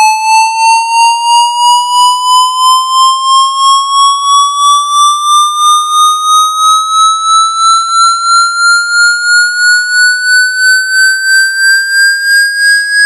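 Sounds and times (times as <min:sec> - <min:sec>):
pulsing electronic tone: 0:04.8 - 0:12.8.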